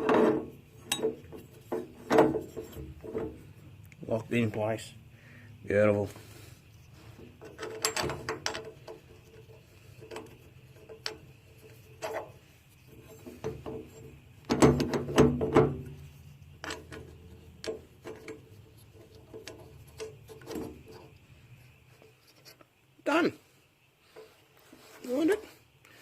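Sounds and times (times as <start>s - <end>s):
metal nut clicking and rattling: 0.1s - 3.4s, 7.2s - 21.2s.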